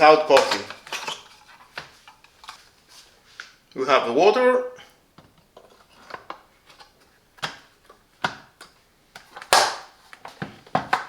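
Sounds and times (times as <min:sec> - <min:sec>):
plastic parts clicking and knocking: 0:00.0 - 0:02.6.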